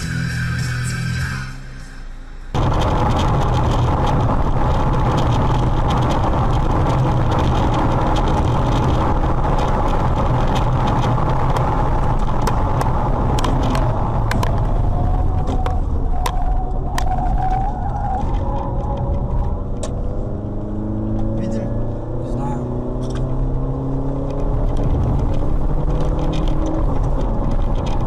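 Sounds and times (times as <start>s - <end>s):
car driving road noise: 0.0s - 28.0s
sharp clicks: 9.6s - 14.7s.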